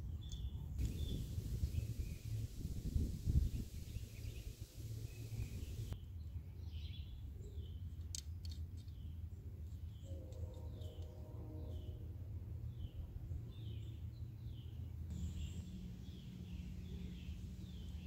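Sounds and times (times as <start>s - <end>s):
bird chirping in falling calls: 0.3s - 6.0s
low rumble: 0.8s - 6.0s.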